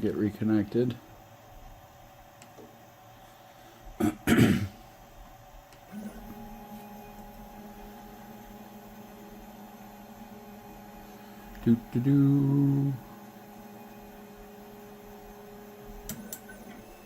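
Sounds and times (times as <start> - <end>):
low electrical hum: 0.0 - 17.0
person clearing throat: 4.0 - 4.8.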